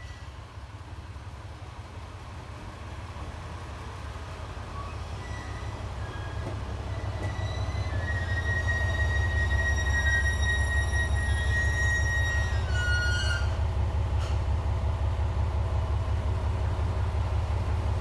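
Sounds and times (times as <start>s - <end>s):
diesel railcar rumbling: 0.0s - 18.0s
brake squeals: 4.7s - 14.4s.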